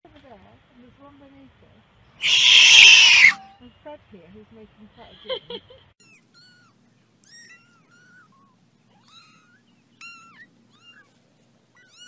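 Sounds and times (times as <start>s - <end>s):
kittens mewing: 2.2s - 3.4s.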